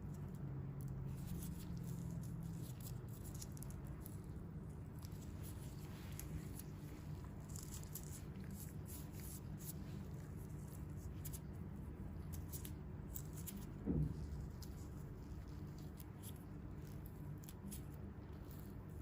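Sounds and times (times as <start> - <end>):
steady low hum: 0.0 - 19.0
soft thump: 13.8 - 14.3.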